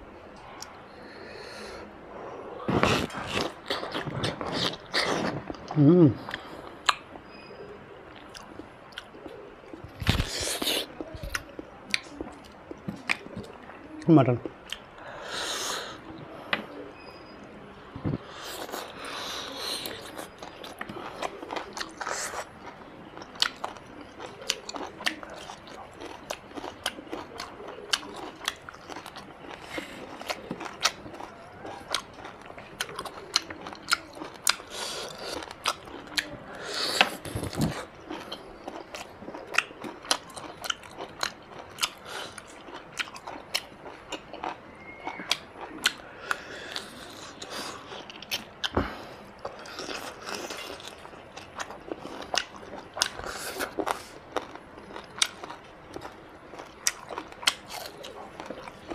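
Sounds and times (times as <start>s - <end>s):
man chewing wetly: 2.6s - 7.2s, 8.1s - 16.9s, 18.1s - 58.9s
mouth clicks and smacks: 14.4s - 14.9s.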